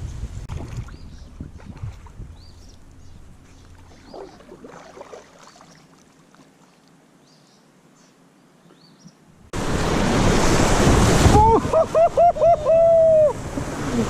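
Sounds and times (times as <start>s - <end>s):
soft water splashes: 0.4s - 7.1s.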